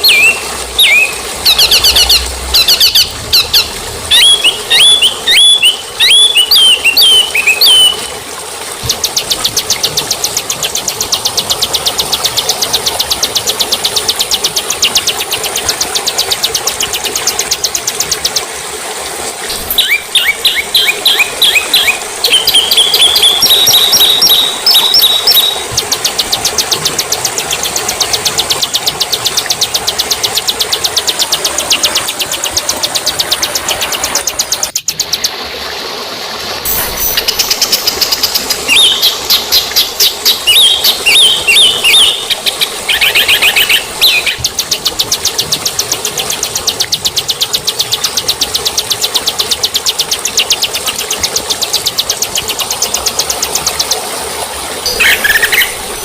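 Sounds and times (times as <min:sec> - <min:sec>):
bird whistled chirps: 0:00.0 - 0:08.1, 0:19.5 - 0:25.7, 0:38.7 - 0:44.5, 0:54.9 - 0:56.0
songbird ticking notes: 0:00.0 - 0:18.6, 0:19.5 - 0:35.4, 0:36.7 - 0:54.2, 0:54.8 - 0:56.0.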